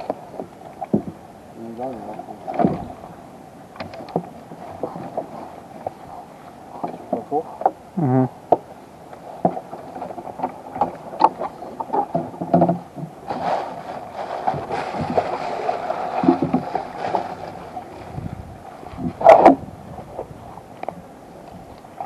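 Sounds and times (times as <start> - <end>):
wood knocking against hull: 0.0 - 1.2, 2.4 - 3.0, 9.4 - 13.6, 14.4 - 15.4, 16.1 - 20.3
paddle swishing through water: 0.0 - 22.0
splash: 13.3 - 18.2.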